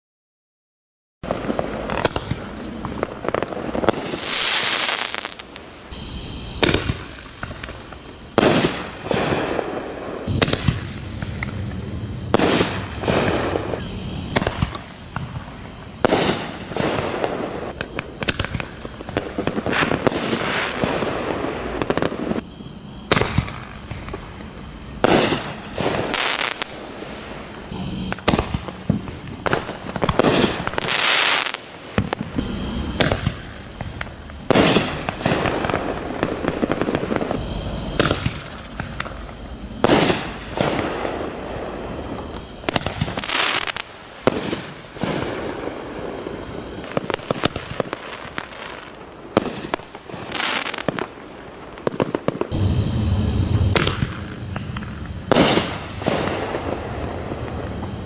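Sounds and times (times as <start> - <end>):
firework shells bursting: 1.3 - 22.5, 25.0 - 58.0
firework shell launch thumps: 52.5 - 56.2.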